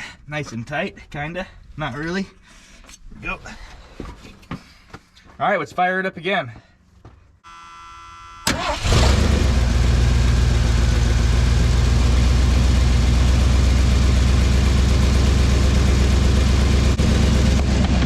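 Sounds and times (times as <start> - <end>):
truck engine starting and running: 8.4 - 18.0.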